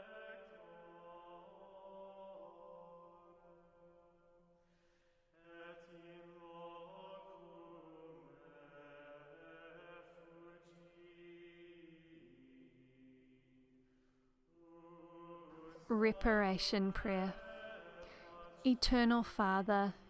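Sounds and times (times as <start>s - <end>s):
voices chanting slow melody: 14.9s - 20.0s.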